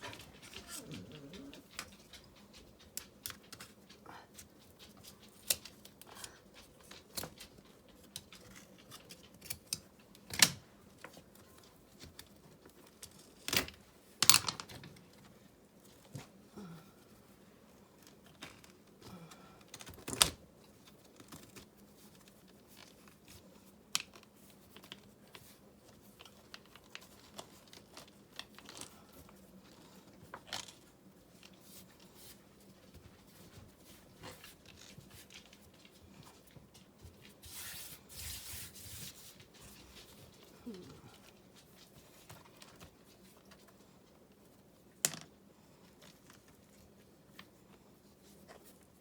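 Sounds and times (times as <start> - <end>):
crinkling and rustling: 0.0 - 49.0.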